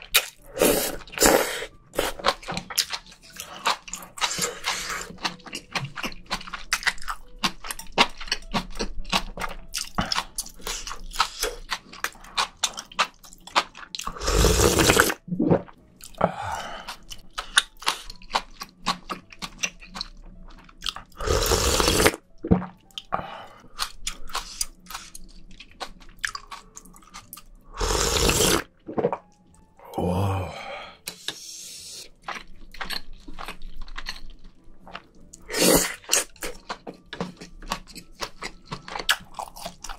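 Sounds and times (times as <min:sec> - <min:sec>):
wet chewing and mouth clicks: 0:00.0 - 0:29.6, 0:32.0 - 0:39.9
loud slurps of broth: 0:14.2 - 0:15.6, 0:21.2 - 0:22.2, 0:27.8 - 0:29.2, 0:35.5 - 0:36.0.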